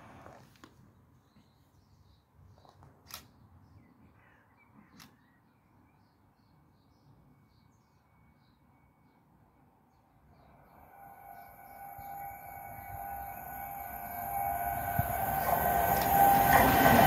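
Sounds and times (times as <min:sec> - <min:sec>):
distant bird calls: 0:10.0 - 0:17.0.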